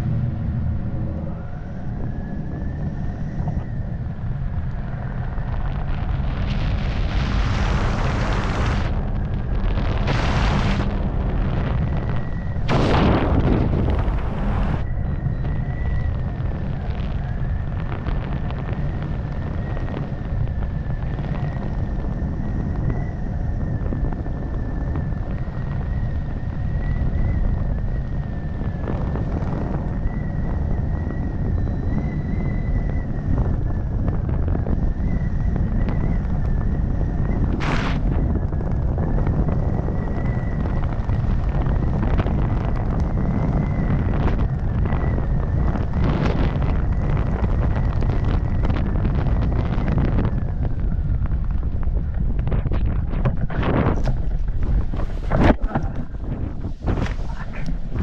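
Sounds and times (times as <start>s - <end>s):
wind rushing over microphone: 0.0s - 58.0s
sharp rush of noise: 9.7s - 11.0s, 37.6s - 38.1s
thin high whine: 34.9s - 38.4s.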